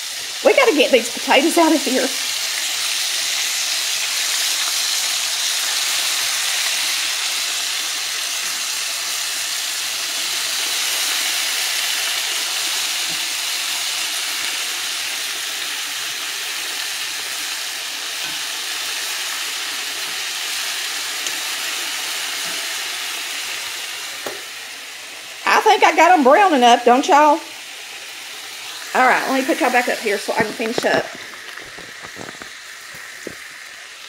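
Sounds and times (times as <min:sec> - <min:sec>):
steaks frying in hot oil: 0:00.0 - 0:34.0.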